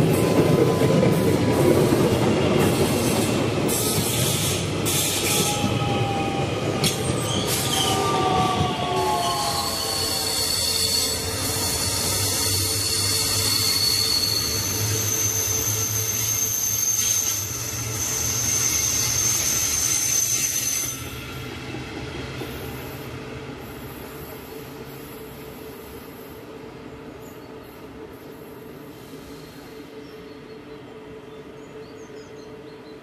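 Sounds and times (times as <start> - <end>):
train wheels squealing: 0.0 - 21.4, 27.2 - 30.6
train rolling past: 0.0 - 33.0.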